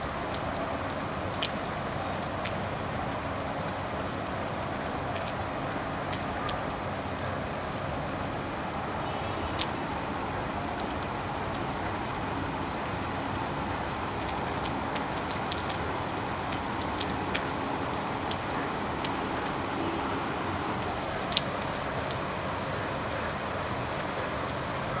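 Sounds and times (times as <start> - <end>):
steady rain falling: 0.0 - 25.0
drops ticking on a surface: 14.0 - 22.3.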